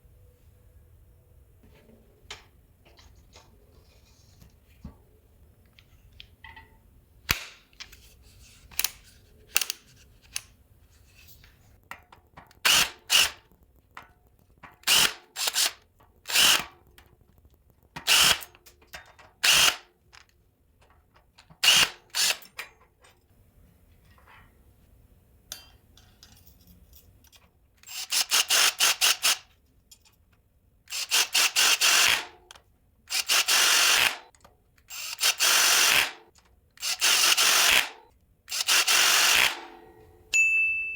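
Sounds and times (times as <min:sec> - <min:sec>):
cordless drill running: 0:12.7 - 0:13.3, 0:14.9 - 0:15.7, 0:16.3 - 0:16.7, 0:18.1 - 0:18.5, 0:19.4 - 0:19.8, 0:30.9 - 0:32.3, 0:33.1 - 0:34.2, 0:34.9 - 0:36.2, 0:36.8 - 0:37.9, 0:38.5 - 0:39.6.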